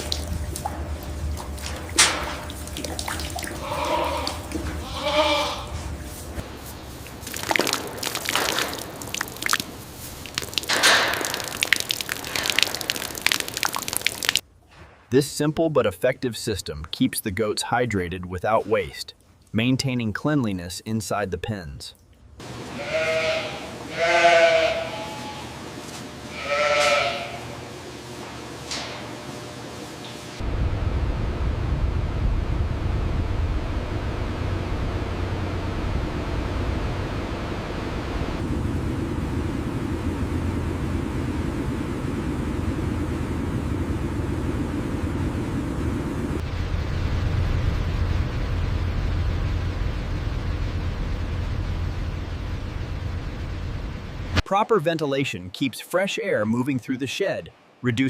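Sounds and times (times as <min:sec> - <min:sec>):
water dripping and splashing: 0:00.0 - 0:03.6, 0:06.9 - 0:14.4
goat bleats: 0:03.5 - 0:05.8, 0:22.6 - 0:25.6, 0:26.3 - 0:27.5.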